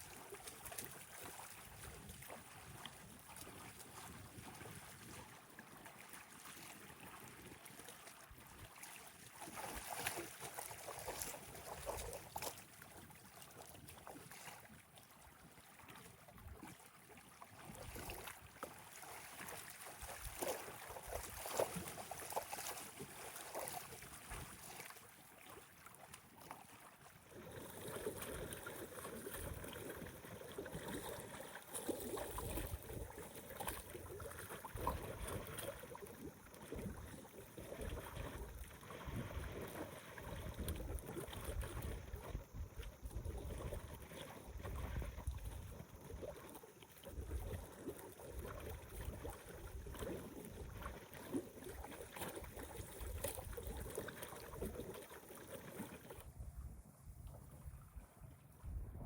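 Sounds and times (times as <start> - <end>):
waves lapping at shore: 0.0 - 56.9
wind buffeting microphone: 58.6 - 59.0.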